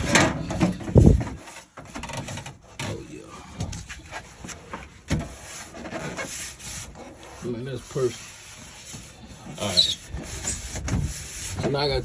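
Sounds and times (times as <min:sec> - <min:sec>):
sheet metal knocks and scrapes: 0:03.6 - 0:11.9.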